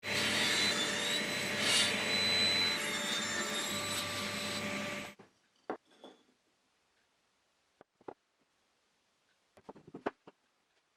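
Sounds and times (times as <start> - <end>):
wood lathe motor running: 0.0 - 5.2.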